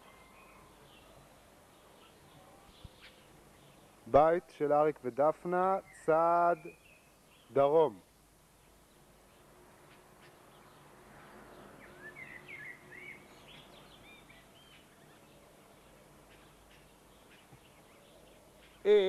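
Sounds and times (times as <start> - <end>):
faint bird chirps: 0.0 - 4.0.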